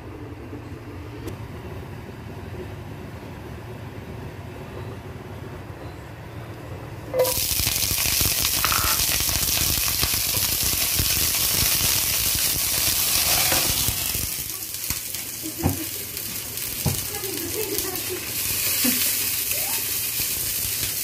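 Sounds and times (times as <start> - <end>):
peppers sizzling in hot oil: 7.1 - 21.0.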